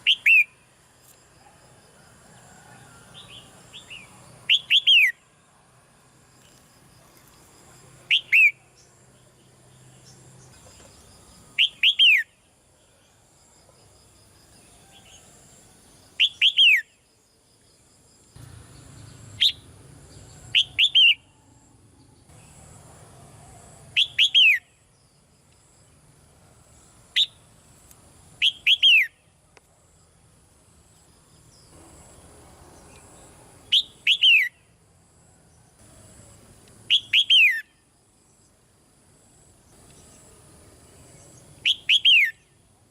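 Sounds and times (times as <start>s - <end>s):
bulbul calling: 0.0s - 0.6s, 3.2s - 5.2s, 8.1s - 8.9s, 11.6s - 12.3s, 16.2s - 16.9s, 20.4s - 21.4s, 24.0s - 24.7s, 28.4s - 29.2s, 33.7s - 34.6s, 36.9s - 37.7s, 41.6s - 42.5s.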